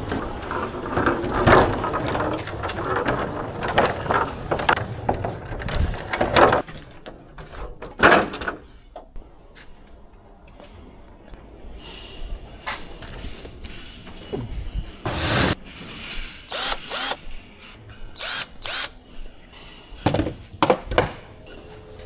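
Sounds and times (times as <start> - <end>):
goods rattling and scraping: 0.0 - 8.0.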